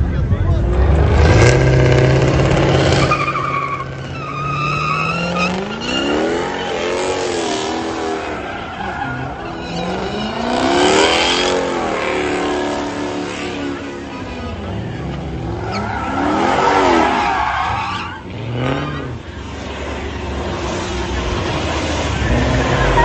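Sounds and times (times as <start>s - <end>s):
engine revving: 0.5s - 8.4s, 9.8s - 13.8s
tyres squealing: 2.7s - 12.1s, 13.6s - 19.2s.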